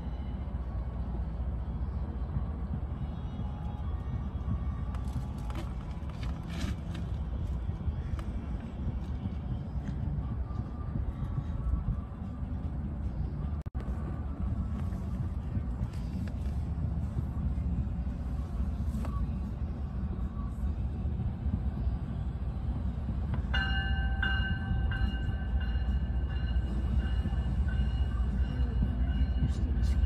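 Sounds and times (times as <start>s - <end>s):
train rumbling: 0.0s - 30.0s
train bell ringing: 23.5s - 30.0s.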